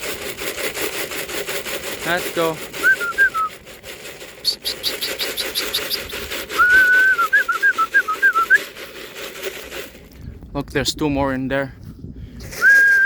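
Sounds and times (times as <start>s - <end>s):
quick high ticks: 2.6s - 9.8s
person whistling warbling call: 2.8s - 3.5s, 4.4s - 8.6s, 12.6s - 13.0s.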